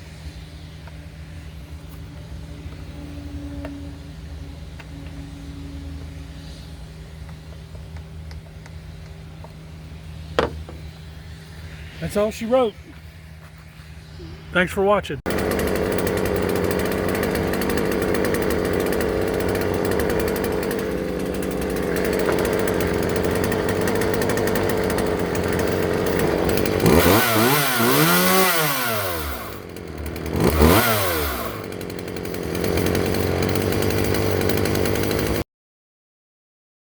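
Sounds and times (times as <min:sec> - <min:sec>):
chainsaw engine idling and revving: 0:15.3 - 0:35.4.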